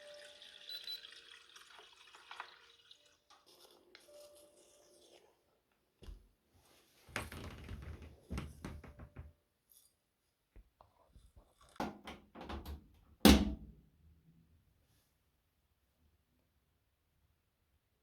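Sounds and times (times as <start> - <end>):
objects knocking and clattering: 11.8 - 13.7.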